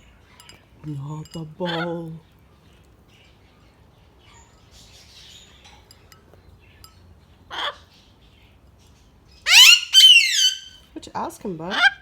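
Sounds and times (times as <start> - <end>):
faint light clinks: 0.3 - 1.5, 5.5 - 7.1
parrot squawk: 9.5 - 10.8.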